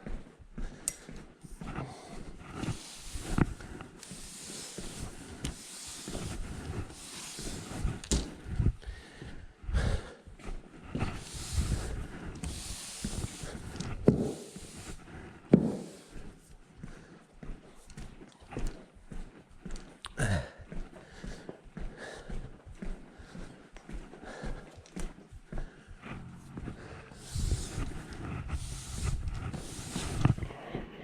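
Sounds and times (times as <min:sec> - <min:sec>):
broom sweeping floor: 0:01.8 - 0:08.6, 0:10.9 - 0:16.6, 0:26.1 - 0:31.0.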